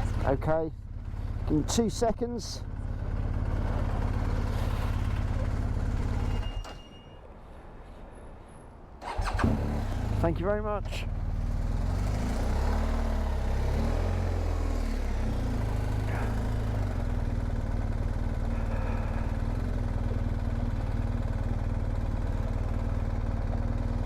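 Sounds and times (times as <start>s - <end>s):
motorcycle engine revving: 11.1s - 24.0s.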